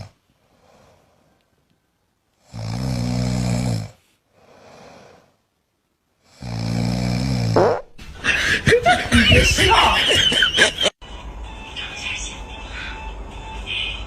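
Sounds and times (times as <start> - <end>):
animal snoring: 2.4 - 5.4, 6.3 - 7.8.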